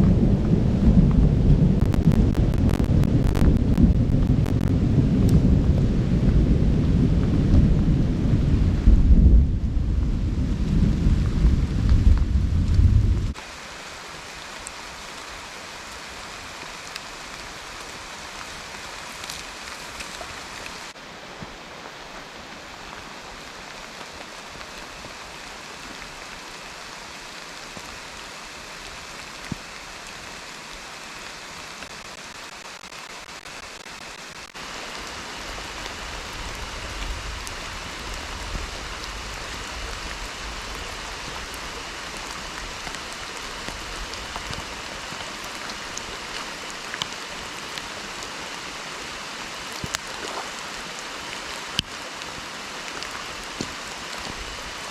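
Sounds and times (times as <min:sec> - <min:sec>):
low thunder rumble: 0:00.0 - 0:13.4
steady rain falling: 0:00.0 - 0:54.9.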